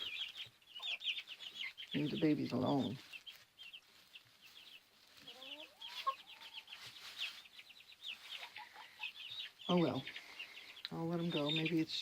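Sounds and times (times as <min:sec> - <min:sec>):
hen calling: 0:00.0 - 0:07.4
chicks peeping: 0:00.0 - 0:12.0.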